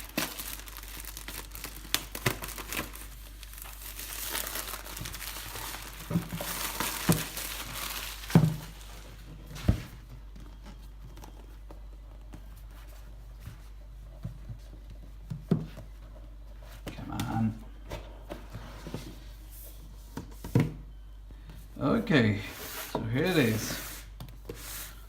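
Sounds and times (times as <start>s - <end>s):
plastic shrink-wrap crinkling and tearing: 0.0s - 9.3s.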